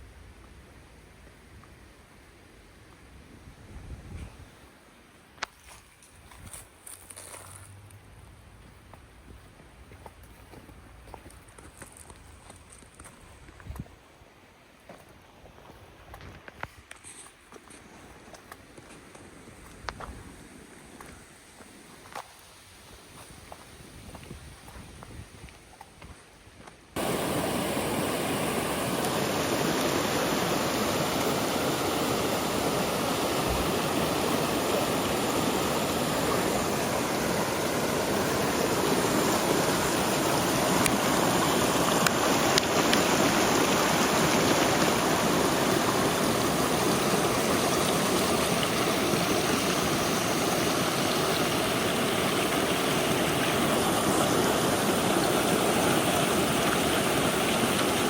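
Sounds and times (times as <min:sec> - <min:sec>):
river water rushing: 0:27.0 - 0:58.0.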